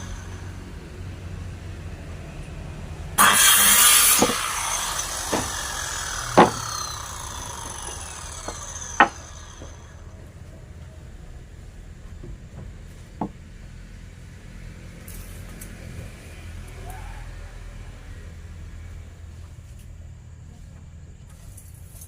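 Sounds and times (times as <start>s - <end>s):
power tool winding down: 0.0s - 1.2s, 3.2s - 10.2s
steady low hum: 0.0s - 16.5s
sharp wooden knocks: 3.2s - 9.9s, 12.2s - 13.4s.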